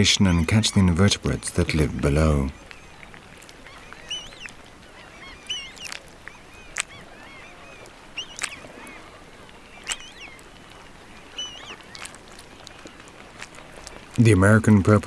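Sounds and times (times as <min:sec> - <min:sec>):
bird squawking calls: 0:02.1 - 0:13.9.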